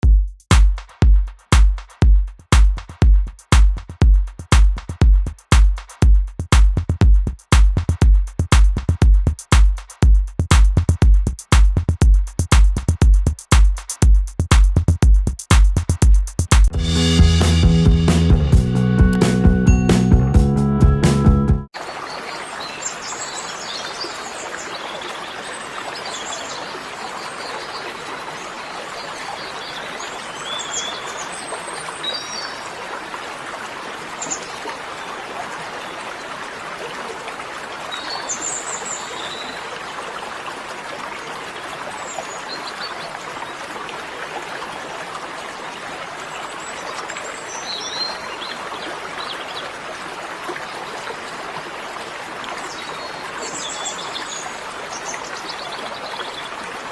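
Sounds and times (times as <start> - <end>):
stream running water: 21.7 - 56.9.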